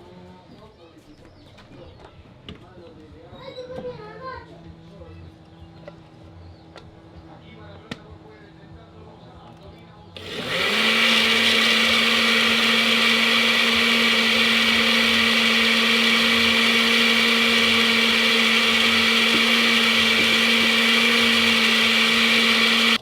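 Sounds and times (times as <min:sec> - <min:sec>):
motor machine humming: 0:10.2 - 0:23.0.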